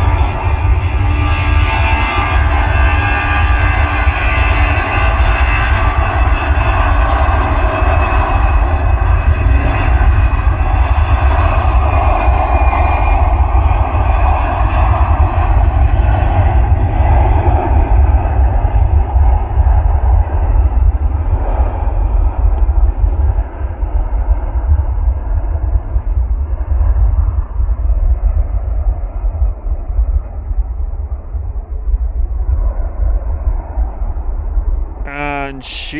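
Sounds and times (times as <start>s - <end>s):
jet engines at high power: 0.0s - 35.0s.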